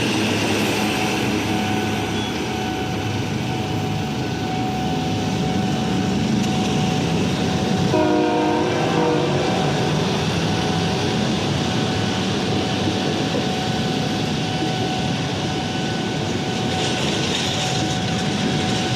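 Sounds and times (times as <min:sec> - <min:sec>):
train wheels rumbling on rails: 0:00.0 - 0:18.9
train horn blast: 0:07.8 - 0:10.0.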